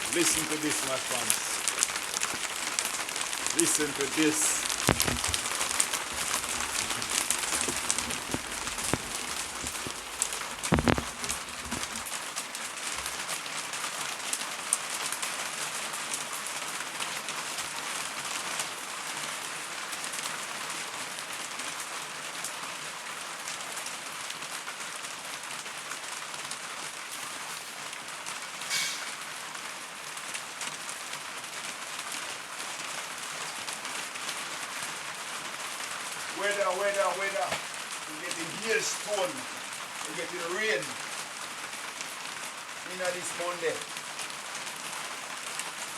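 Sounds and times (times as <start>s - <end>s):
hail strikes ticking: 0.0s - 18.2s, 33.4s - 45.9s
heavy rain on roof: 0.0s - 45.9s.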